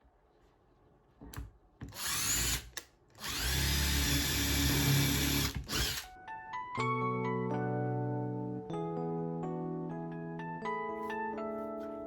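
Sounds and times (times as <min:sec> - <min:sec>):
power drill whining: 0:01.9 - 0:06.1.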